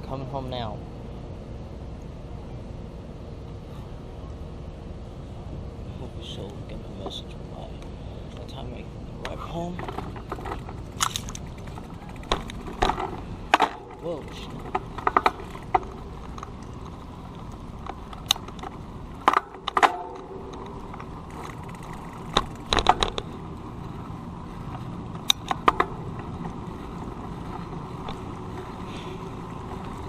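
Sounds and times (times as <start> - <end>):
wind: 0.0 - 30.0
tyres rumbling: 4.6 - 30.0
bicycle rattling and clicking: 9.2 - 30.0.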